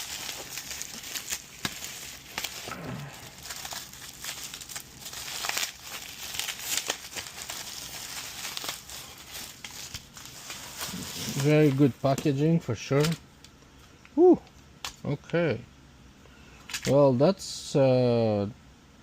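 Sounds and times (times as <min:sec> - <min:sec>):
packaging crinkling and rustling: 0:00.0 - 0:13.2.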